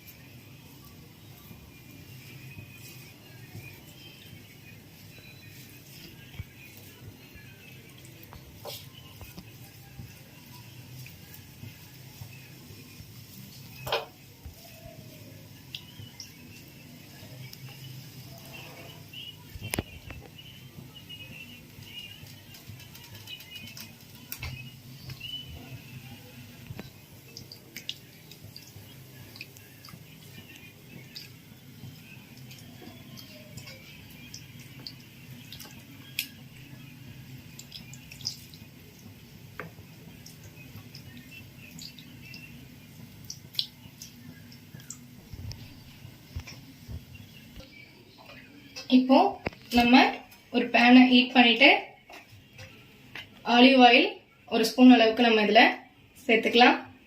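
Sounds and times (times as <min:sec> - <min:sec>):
wet clicks of chicken being mixed: 0:10.9 - 0:16.8, 0:17.4 - 0:45.7
birds chirping: 0:12.2 - 0:39.0, 0:39.8 - 0:50.2.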